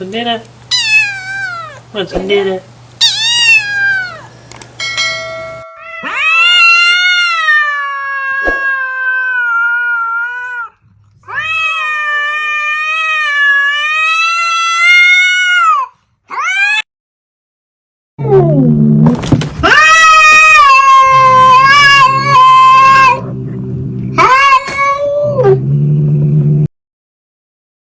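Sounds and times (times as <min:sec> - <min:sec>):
cat yowling: 0:00.7 - 0:01.8, 0:03.0 - 0:04.3, 0:05.6 - 0:16.9, 0:19.6 - 0:23.3, 0:24.2 - 0:25.6.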